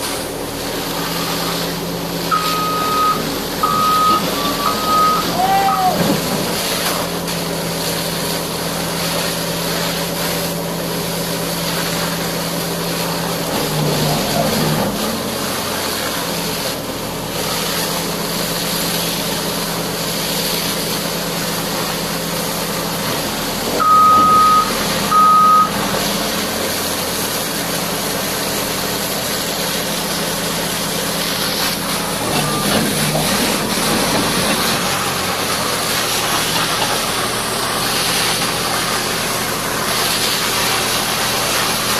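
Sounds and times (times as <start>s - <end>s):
diesel engine running: 0.0s - 41.9s
loud high beeps: 2.3s - 6.0s, 23.8s - 25.8s.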